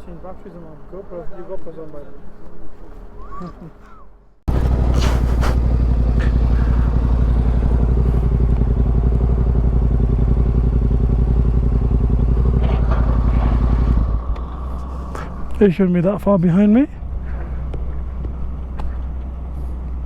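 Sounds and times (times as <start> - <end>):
motorcycle engine running: 4.5 - 20.0.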